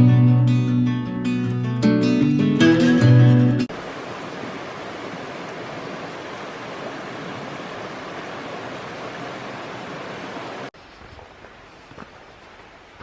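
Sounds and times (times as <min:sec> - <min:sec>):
rushing water: 0:02.4 - 0:13.0.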